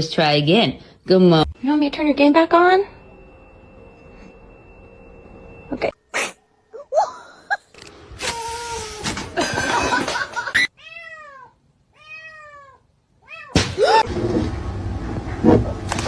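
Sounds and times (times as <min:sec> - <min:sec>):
cat meowing: 0:10.8 - 0:13.6.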